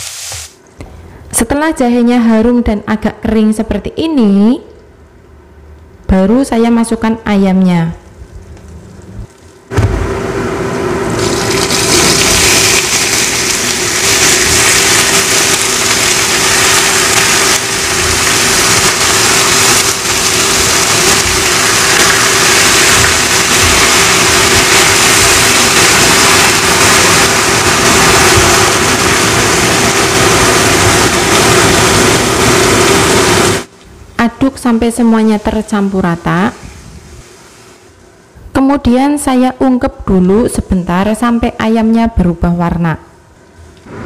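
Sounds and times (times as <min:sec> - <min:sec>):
chicken sizzling in a wok: 0:00.0 - 0:00.6, 0:10.0 - 0:33.7
steady hum: 0:07.5 - 0:38.8.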